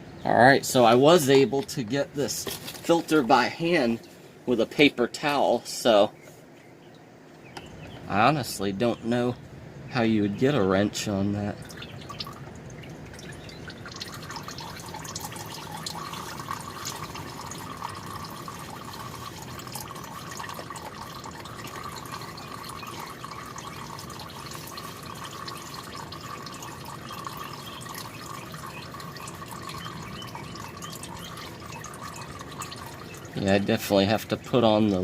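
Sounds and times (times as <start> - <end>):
small drips landing: 11.6 - 33.7
oil trickling into drain pan: 11.6 - 35.0.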